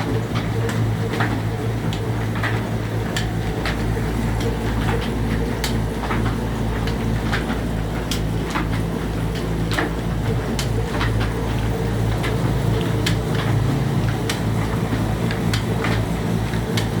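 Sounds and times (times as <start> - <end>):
slow diesel engine with ticks: 0.0 - 17.0.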